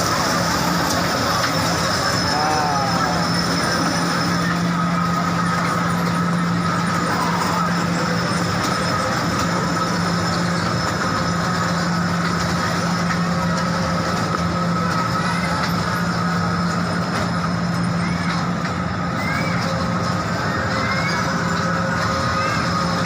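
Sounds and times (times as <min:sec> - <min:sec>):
train running: 0:00.0 - 0:23.0.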